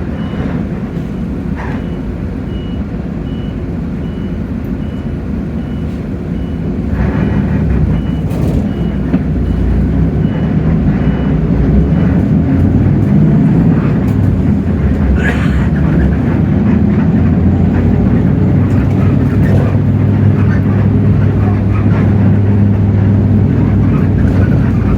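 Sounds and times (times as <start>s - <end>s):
bus diesel engine under load: 0.0s - 24.9s.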